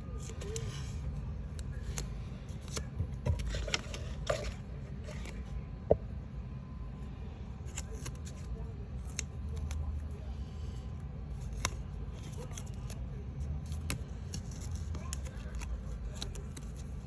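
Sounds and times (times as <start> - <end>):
paper rustling: 0.1 - 0.9, 1.5 - 5.4, 13.6 - 17.0.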